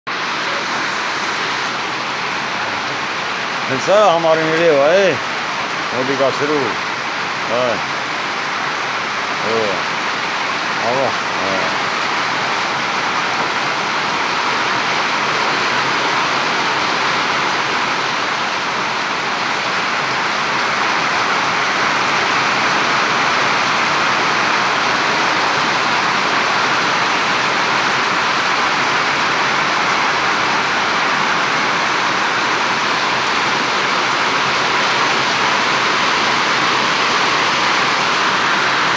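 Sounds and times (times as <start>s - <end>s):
heavy rain: 0.1s - 38.9s.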